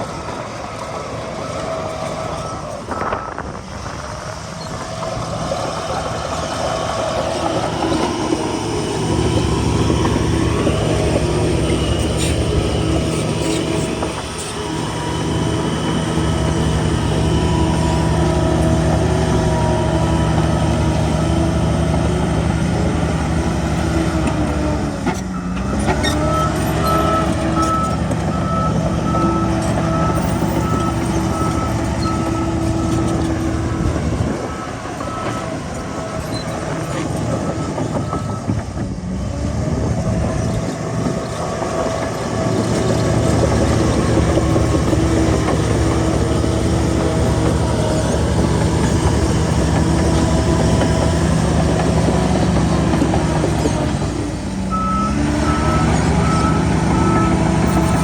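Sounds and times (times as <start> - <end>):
diesel earthmoving machine running: 0.0 - 58.0
reversing alarm beeping: 0.1 - 23.1, 25.3 - 38.7, 54.7 - 58.0.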